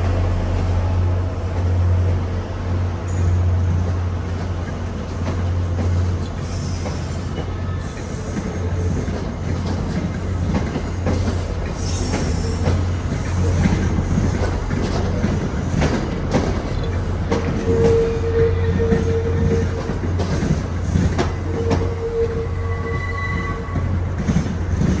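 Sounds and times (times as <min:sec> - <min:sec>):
train wheels clicking over rails: 0:00.0 - 0:18.3, 0:18.9 - 0:22.6
wheel squeal: 0:20.8 - 0:23.9.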